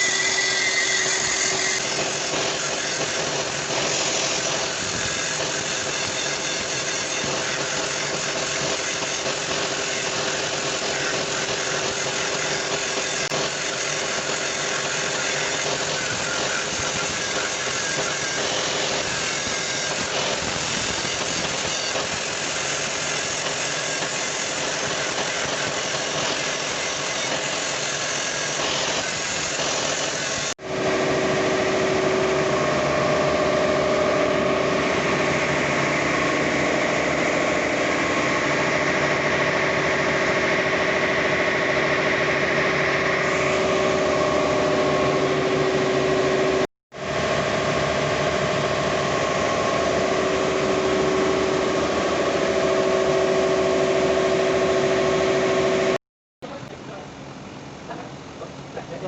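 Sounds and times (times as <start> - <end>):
loud machine running: 0.0 - 56.0
multi-tone whine: 24.8 - 56.8.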